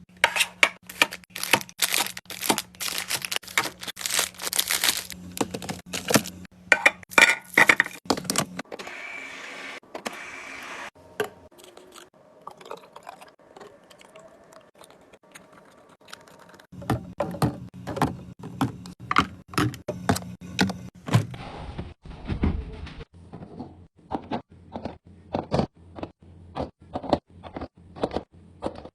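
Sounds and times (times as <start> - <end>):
containers clicking and clunking: 0.2 - 8.6.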